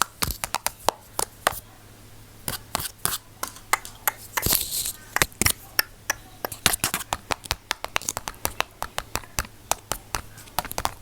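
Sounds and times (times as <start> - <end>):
sharp clicks and taps: 5.2 - 11.0.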